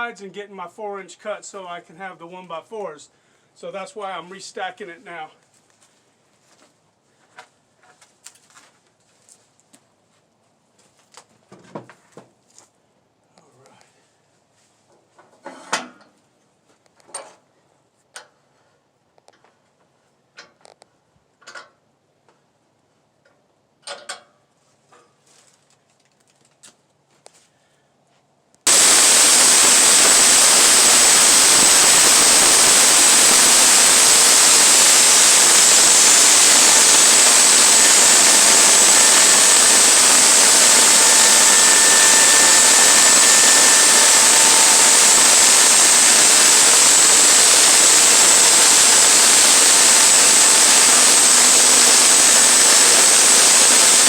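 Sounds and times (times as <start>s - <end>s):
sawmill cutting wood: 28.7s - 54.0s.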